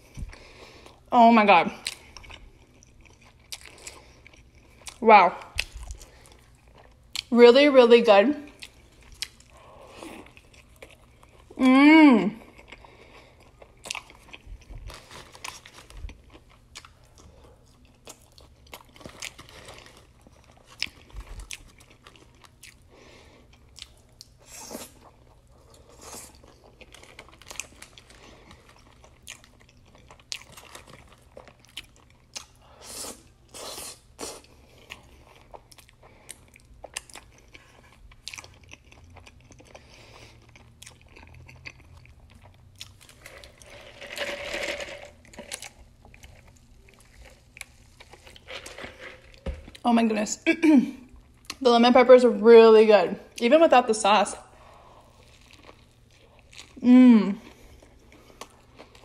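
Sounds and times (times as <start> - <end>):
crunchy chewing: 12.4 - 44.0, 55.0 - 56.8.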